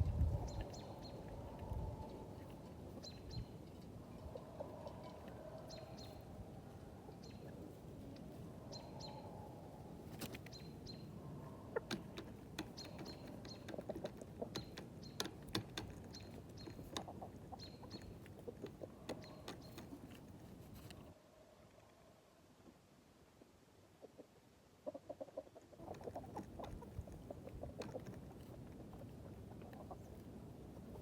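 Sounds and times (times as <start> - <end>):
chickens calling softly: 0.0 - 21.2, 23.4 - 31.0
chicken beaks tapping: 11.7 - 21.1, 25.3 - 30.3.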